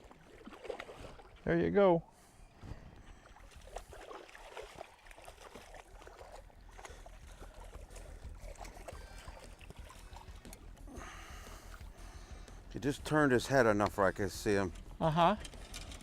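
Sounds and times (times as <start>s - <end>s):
water lapping against boat hull: 0.0s - 16.0s
steady low hum: 5.8s - 16.0s
small clicks and knocks: 14.7s - 16.0s.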